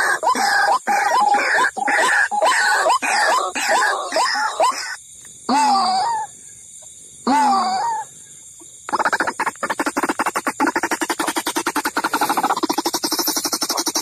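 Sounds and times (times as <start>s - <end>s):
waterhen calling: 0.0s - 5.0s, 8.9s - 14.0s.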